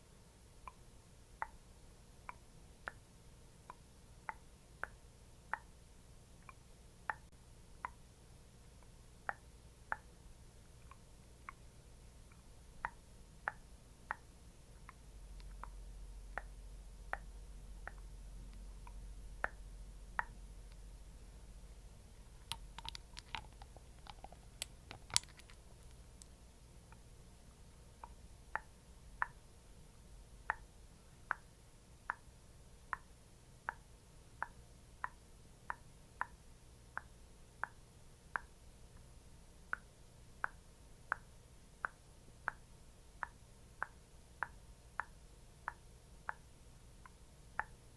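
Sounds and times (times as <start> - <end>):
sticky tapping on skin: 22.4 - 26.3.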